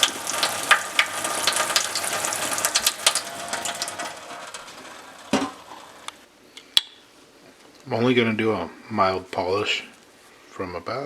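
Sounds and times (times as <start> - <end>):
water splashing on metal: 0.0 - 6.2.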